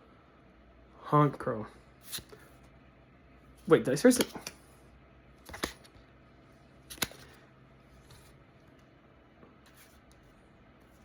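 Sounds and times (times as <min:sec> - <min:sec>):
card flicks: 0:05.4 - 0:05.9, 0:06.9 - 0:07.4.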